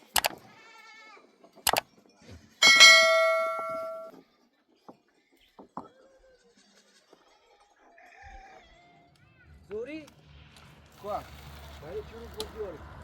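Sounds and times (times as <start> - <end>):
metal object ringing: 2.6 - 4.1.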